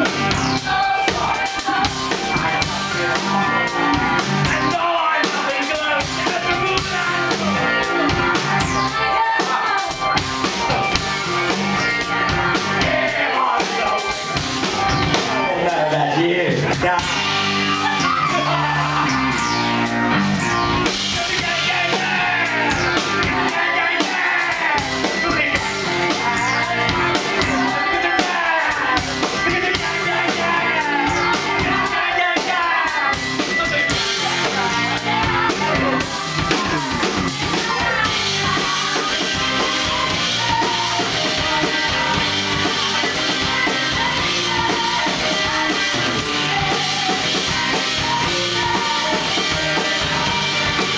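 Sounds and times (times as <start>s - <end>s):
live rock band playing: 0.0s - 50.9s
people singing: 0.0s - 50.9s.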